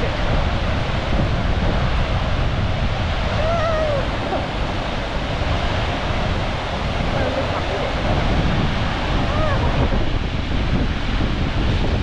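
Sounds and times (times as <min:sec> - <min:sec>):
waterfall rushing: 0:02.8 - 0:10.6.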